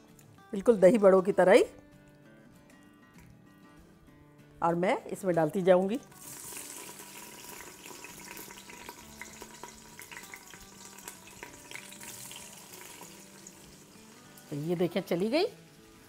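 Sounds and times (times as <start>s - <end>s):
food sizzling in hot oil: 6.1s - 16.0s.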